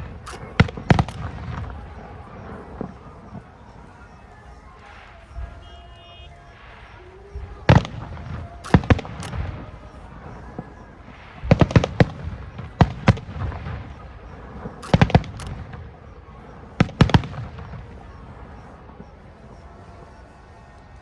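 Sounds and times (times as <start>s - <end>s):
fireworks shells bursting: 0.0s - 1.7s, 8.6s - 9.9s, 14.8s - 16.0s.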